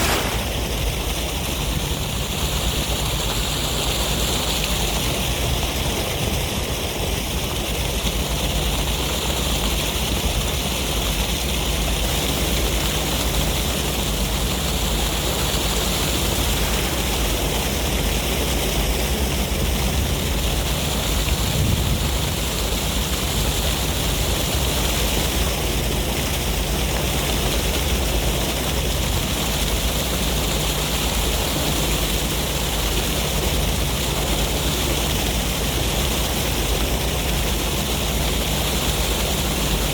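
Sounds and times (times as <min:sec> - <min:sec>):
ocean surf rushing: 0:00.0 - 0:02.2, 0:15.2 - 0:20.8
sea breeze: 0:00.0 - 0:39.9.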